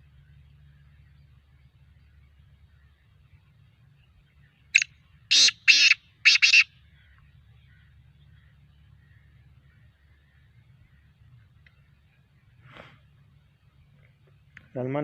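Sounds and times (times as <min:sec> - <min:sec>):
francolin calling: 0:04.7 - 0:10.4.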